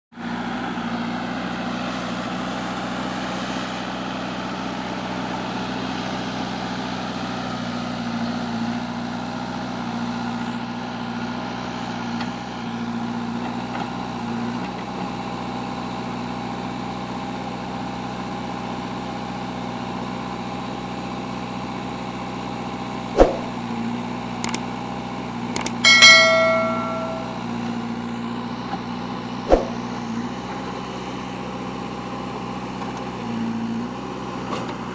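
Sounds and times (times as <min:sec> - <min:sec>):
ringing metallic clang: 0:25.6 - 0:27.5
sharp knock: 0:25.9 - 0:27.4, 0:29.5 - 0:29.8.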